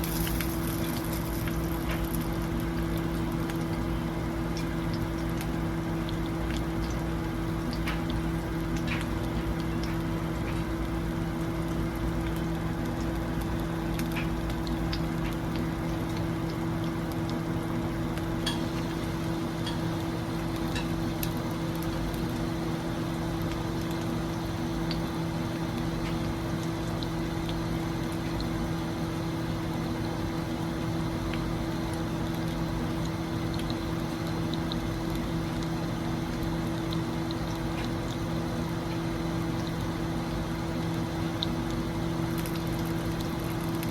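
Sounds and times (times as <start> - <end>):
food sizzling: 0.0 - 27.8
steady low hum: 0.0 - 43.9.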